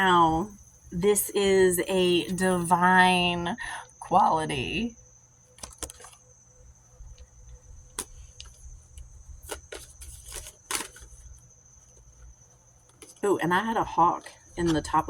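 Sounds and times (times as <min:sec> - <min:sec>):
cards clicking and snapping: 0:05.6 - 0:06.2, 0:07.9 - 0:08.6, 0:09.5 - 0:11.2.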